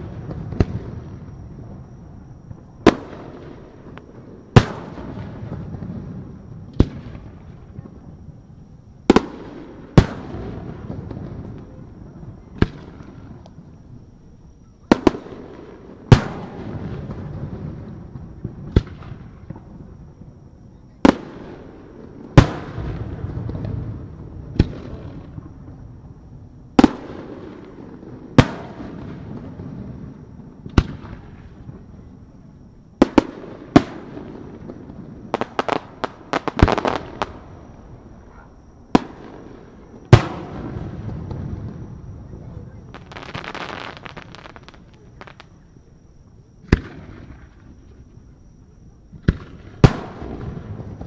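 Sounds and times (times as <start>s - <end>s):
crackling firework reports: 0.0s - 51.0s
firework bangs with rumbling echo: 30.6s - 31.3s, 49.2s - 51.0s.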